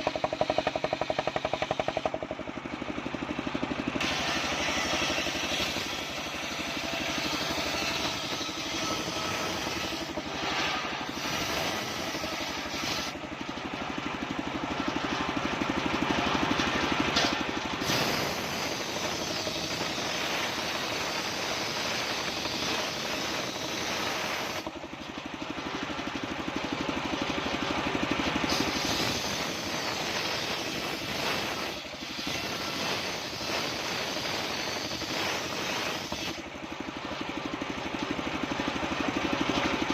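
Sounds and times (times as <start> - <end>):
circular saw cutting wood: 0.0 - 2.3, 3.8 - 13.2, 16.3 - 25.0, 28.4 - 36.5.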